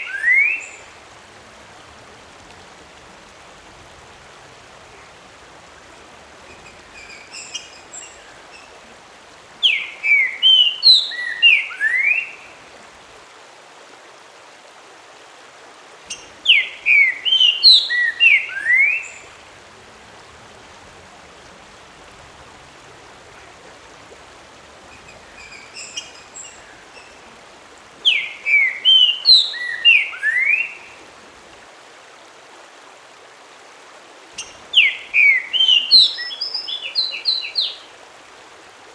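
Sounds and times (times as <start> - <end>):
steady hiss: 0.0 - 14.4, 15.9 - 32.4.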